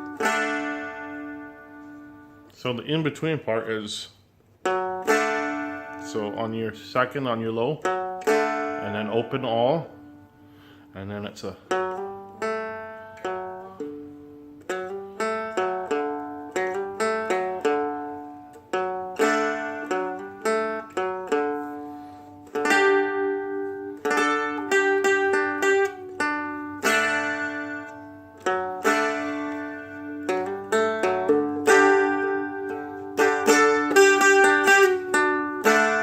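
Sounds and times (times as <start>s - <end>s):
strummed and plucked dulcimer: 0.0s - 2.5s, 4.6s - 6.7s, 7.5s - 10.7s, 11.7s - 36.0s.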